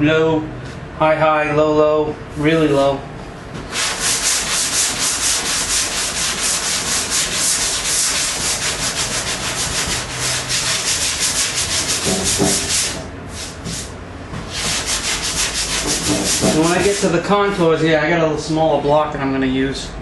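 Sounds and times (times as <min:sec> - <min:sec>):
sandpaper rasping back and forth: 0:03.7 - 0:13.9, 0:14.5 - 0:17.2.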